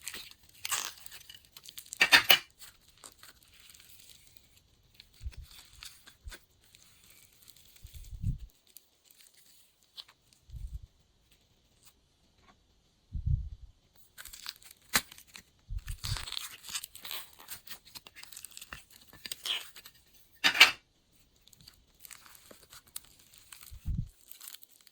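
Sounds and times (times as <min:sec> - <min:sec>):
soft low thumps: 0:13.1 - 0:13.7.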